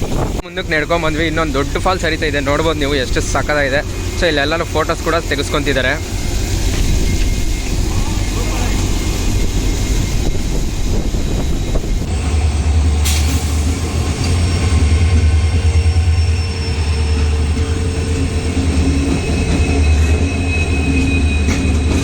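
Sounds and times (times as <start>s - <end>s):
train rumbling: 0.0s - 22.0s
high whining tones: 4.8s - 22.0s.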